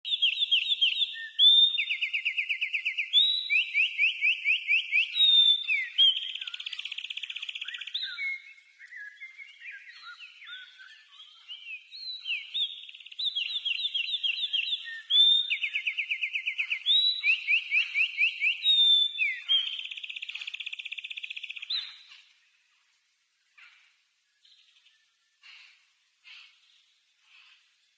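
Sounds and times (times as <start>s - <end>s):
bird singing repeated notes: 0.0s - 22.4s
soft bird twittering: 0.0s - 27.9s.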